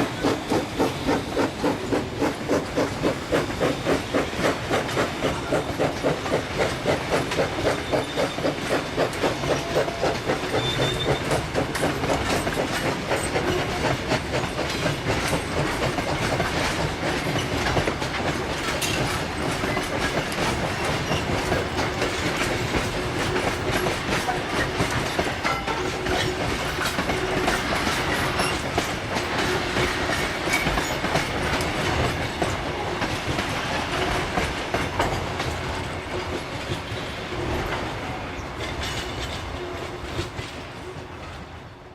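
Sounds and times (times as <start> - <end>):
steam train running on track: 0.0 - 41.9.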